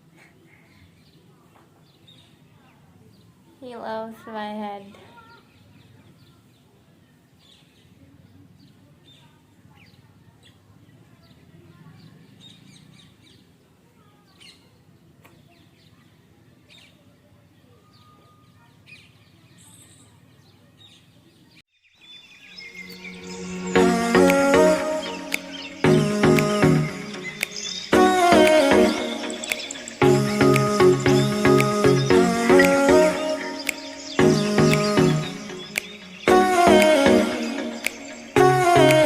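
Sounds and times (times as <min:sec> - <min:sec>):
budgie chirping: 0:22.7 - 0:39.0
music: 0:22.7 - 0:39.0.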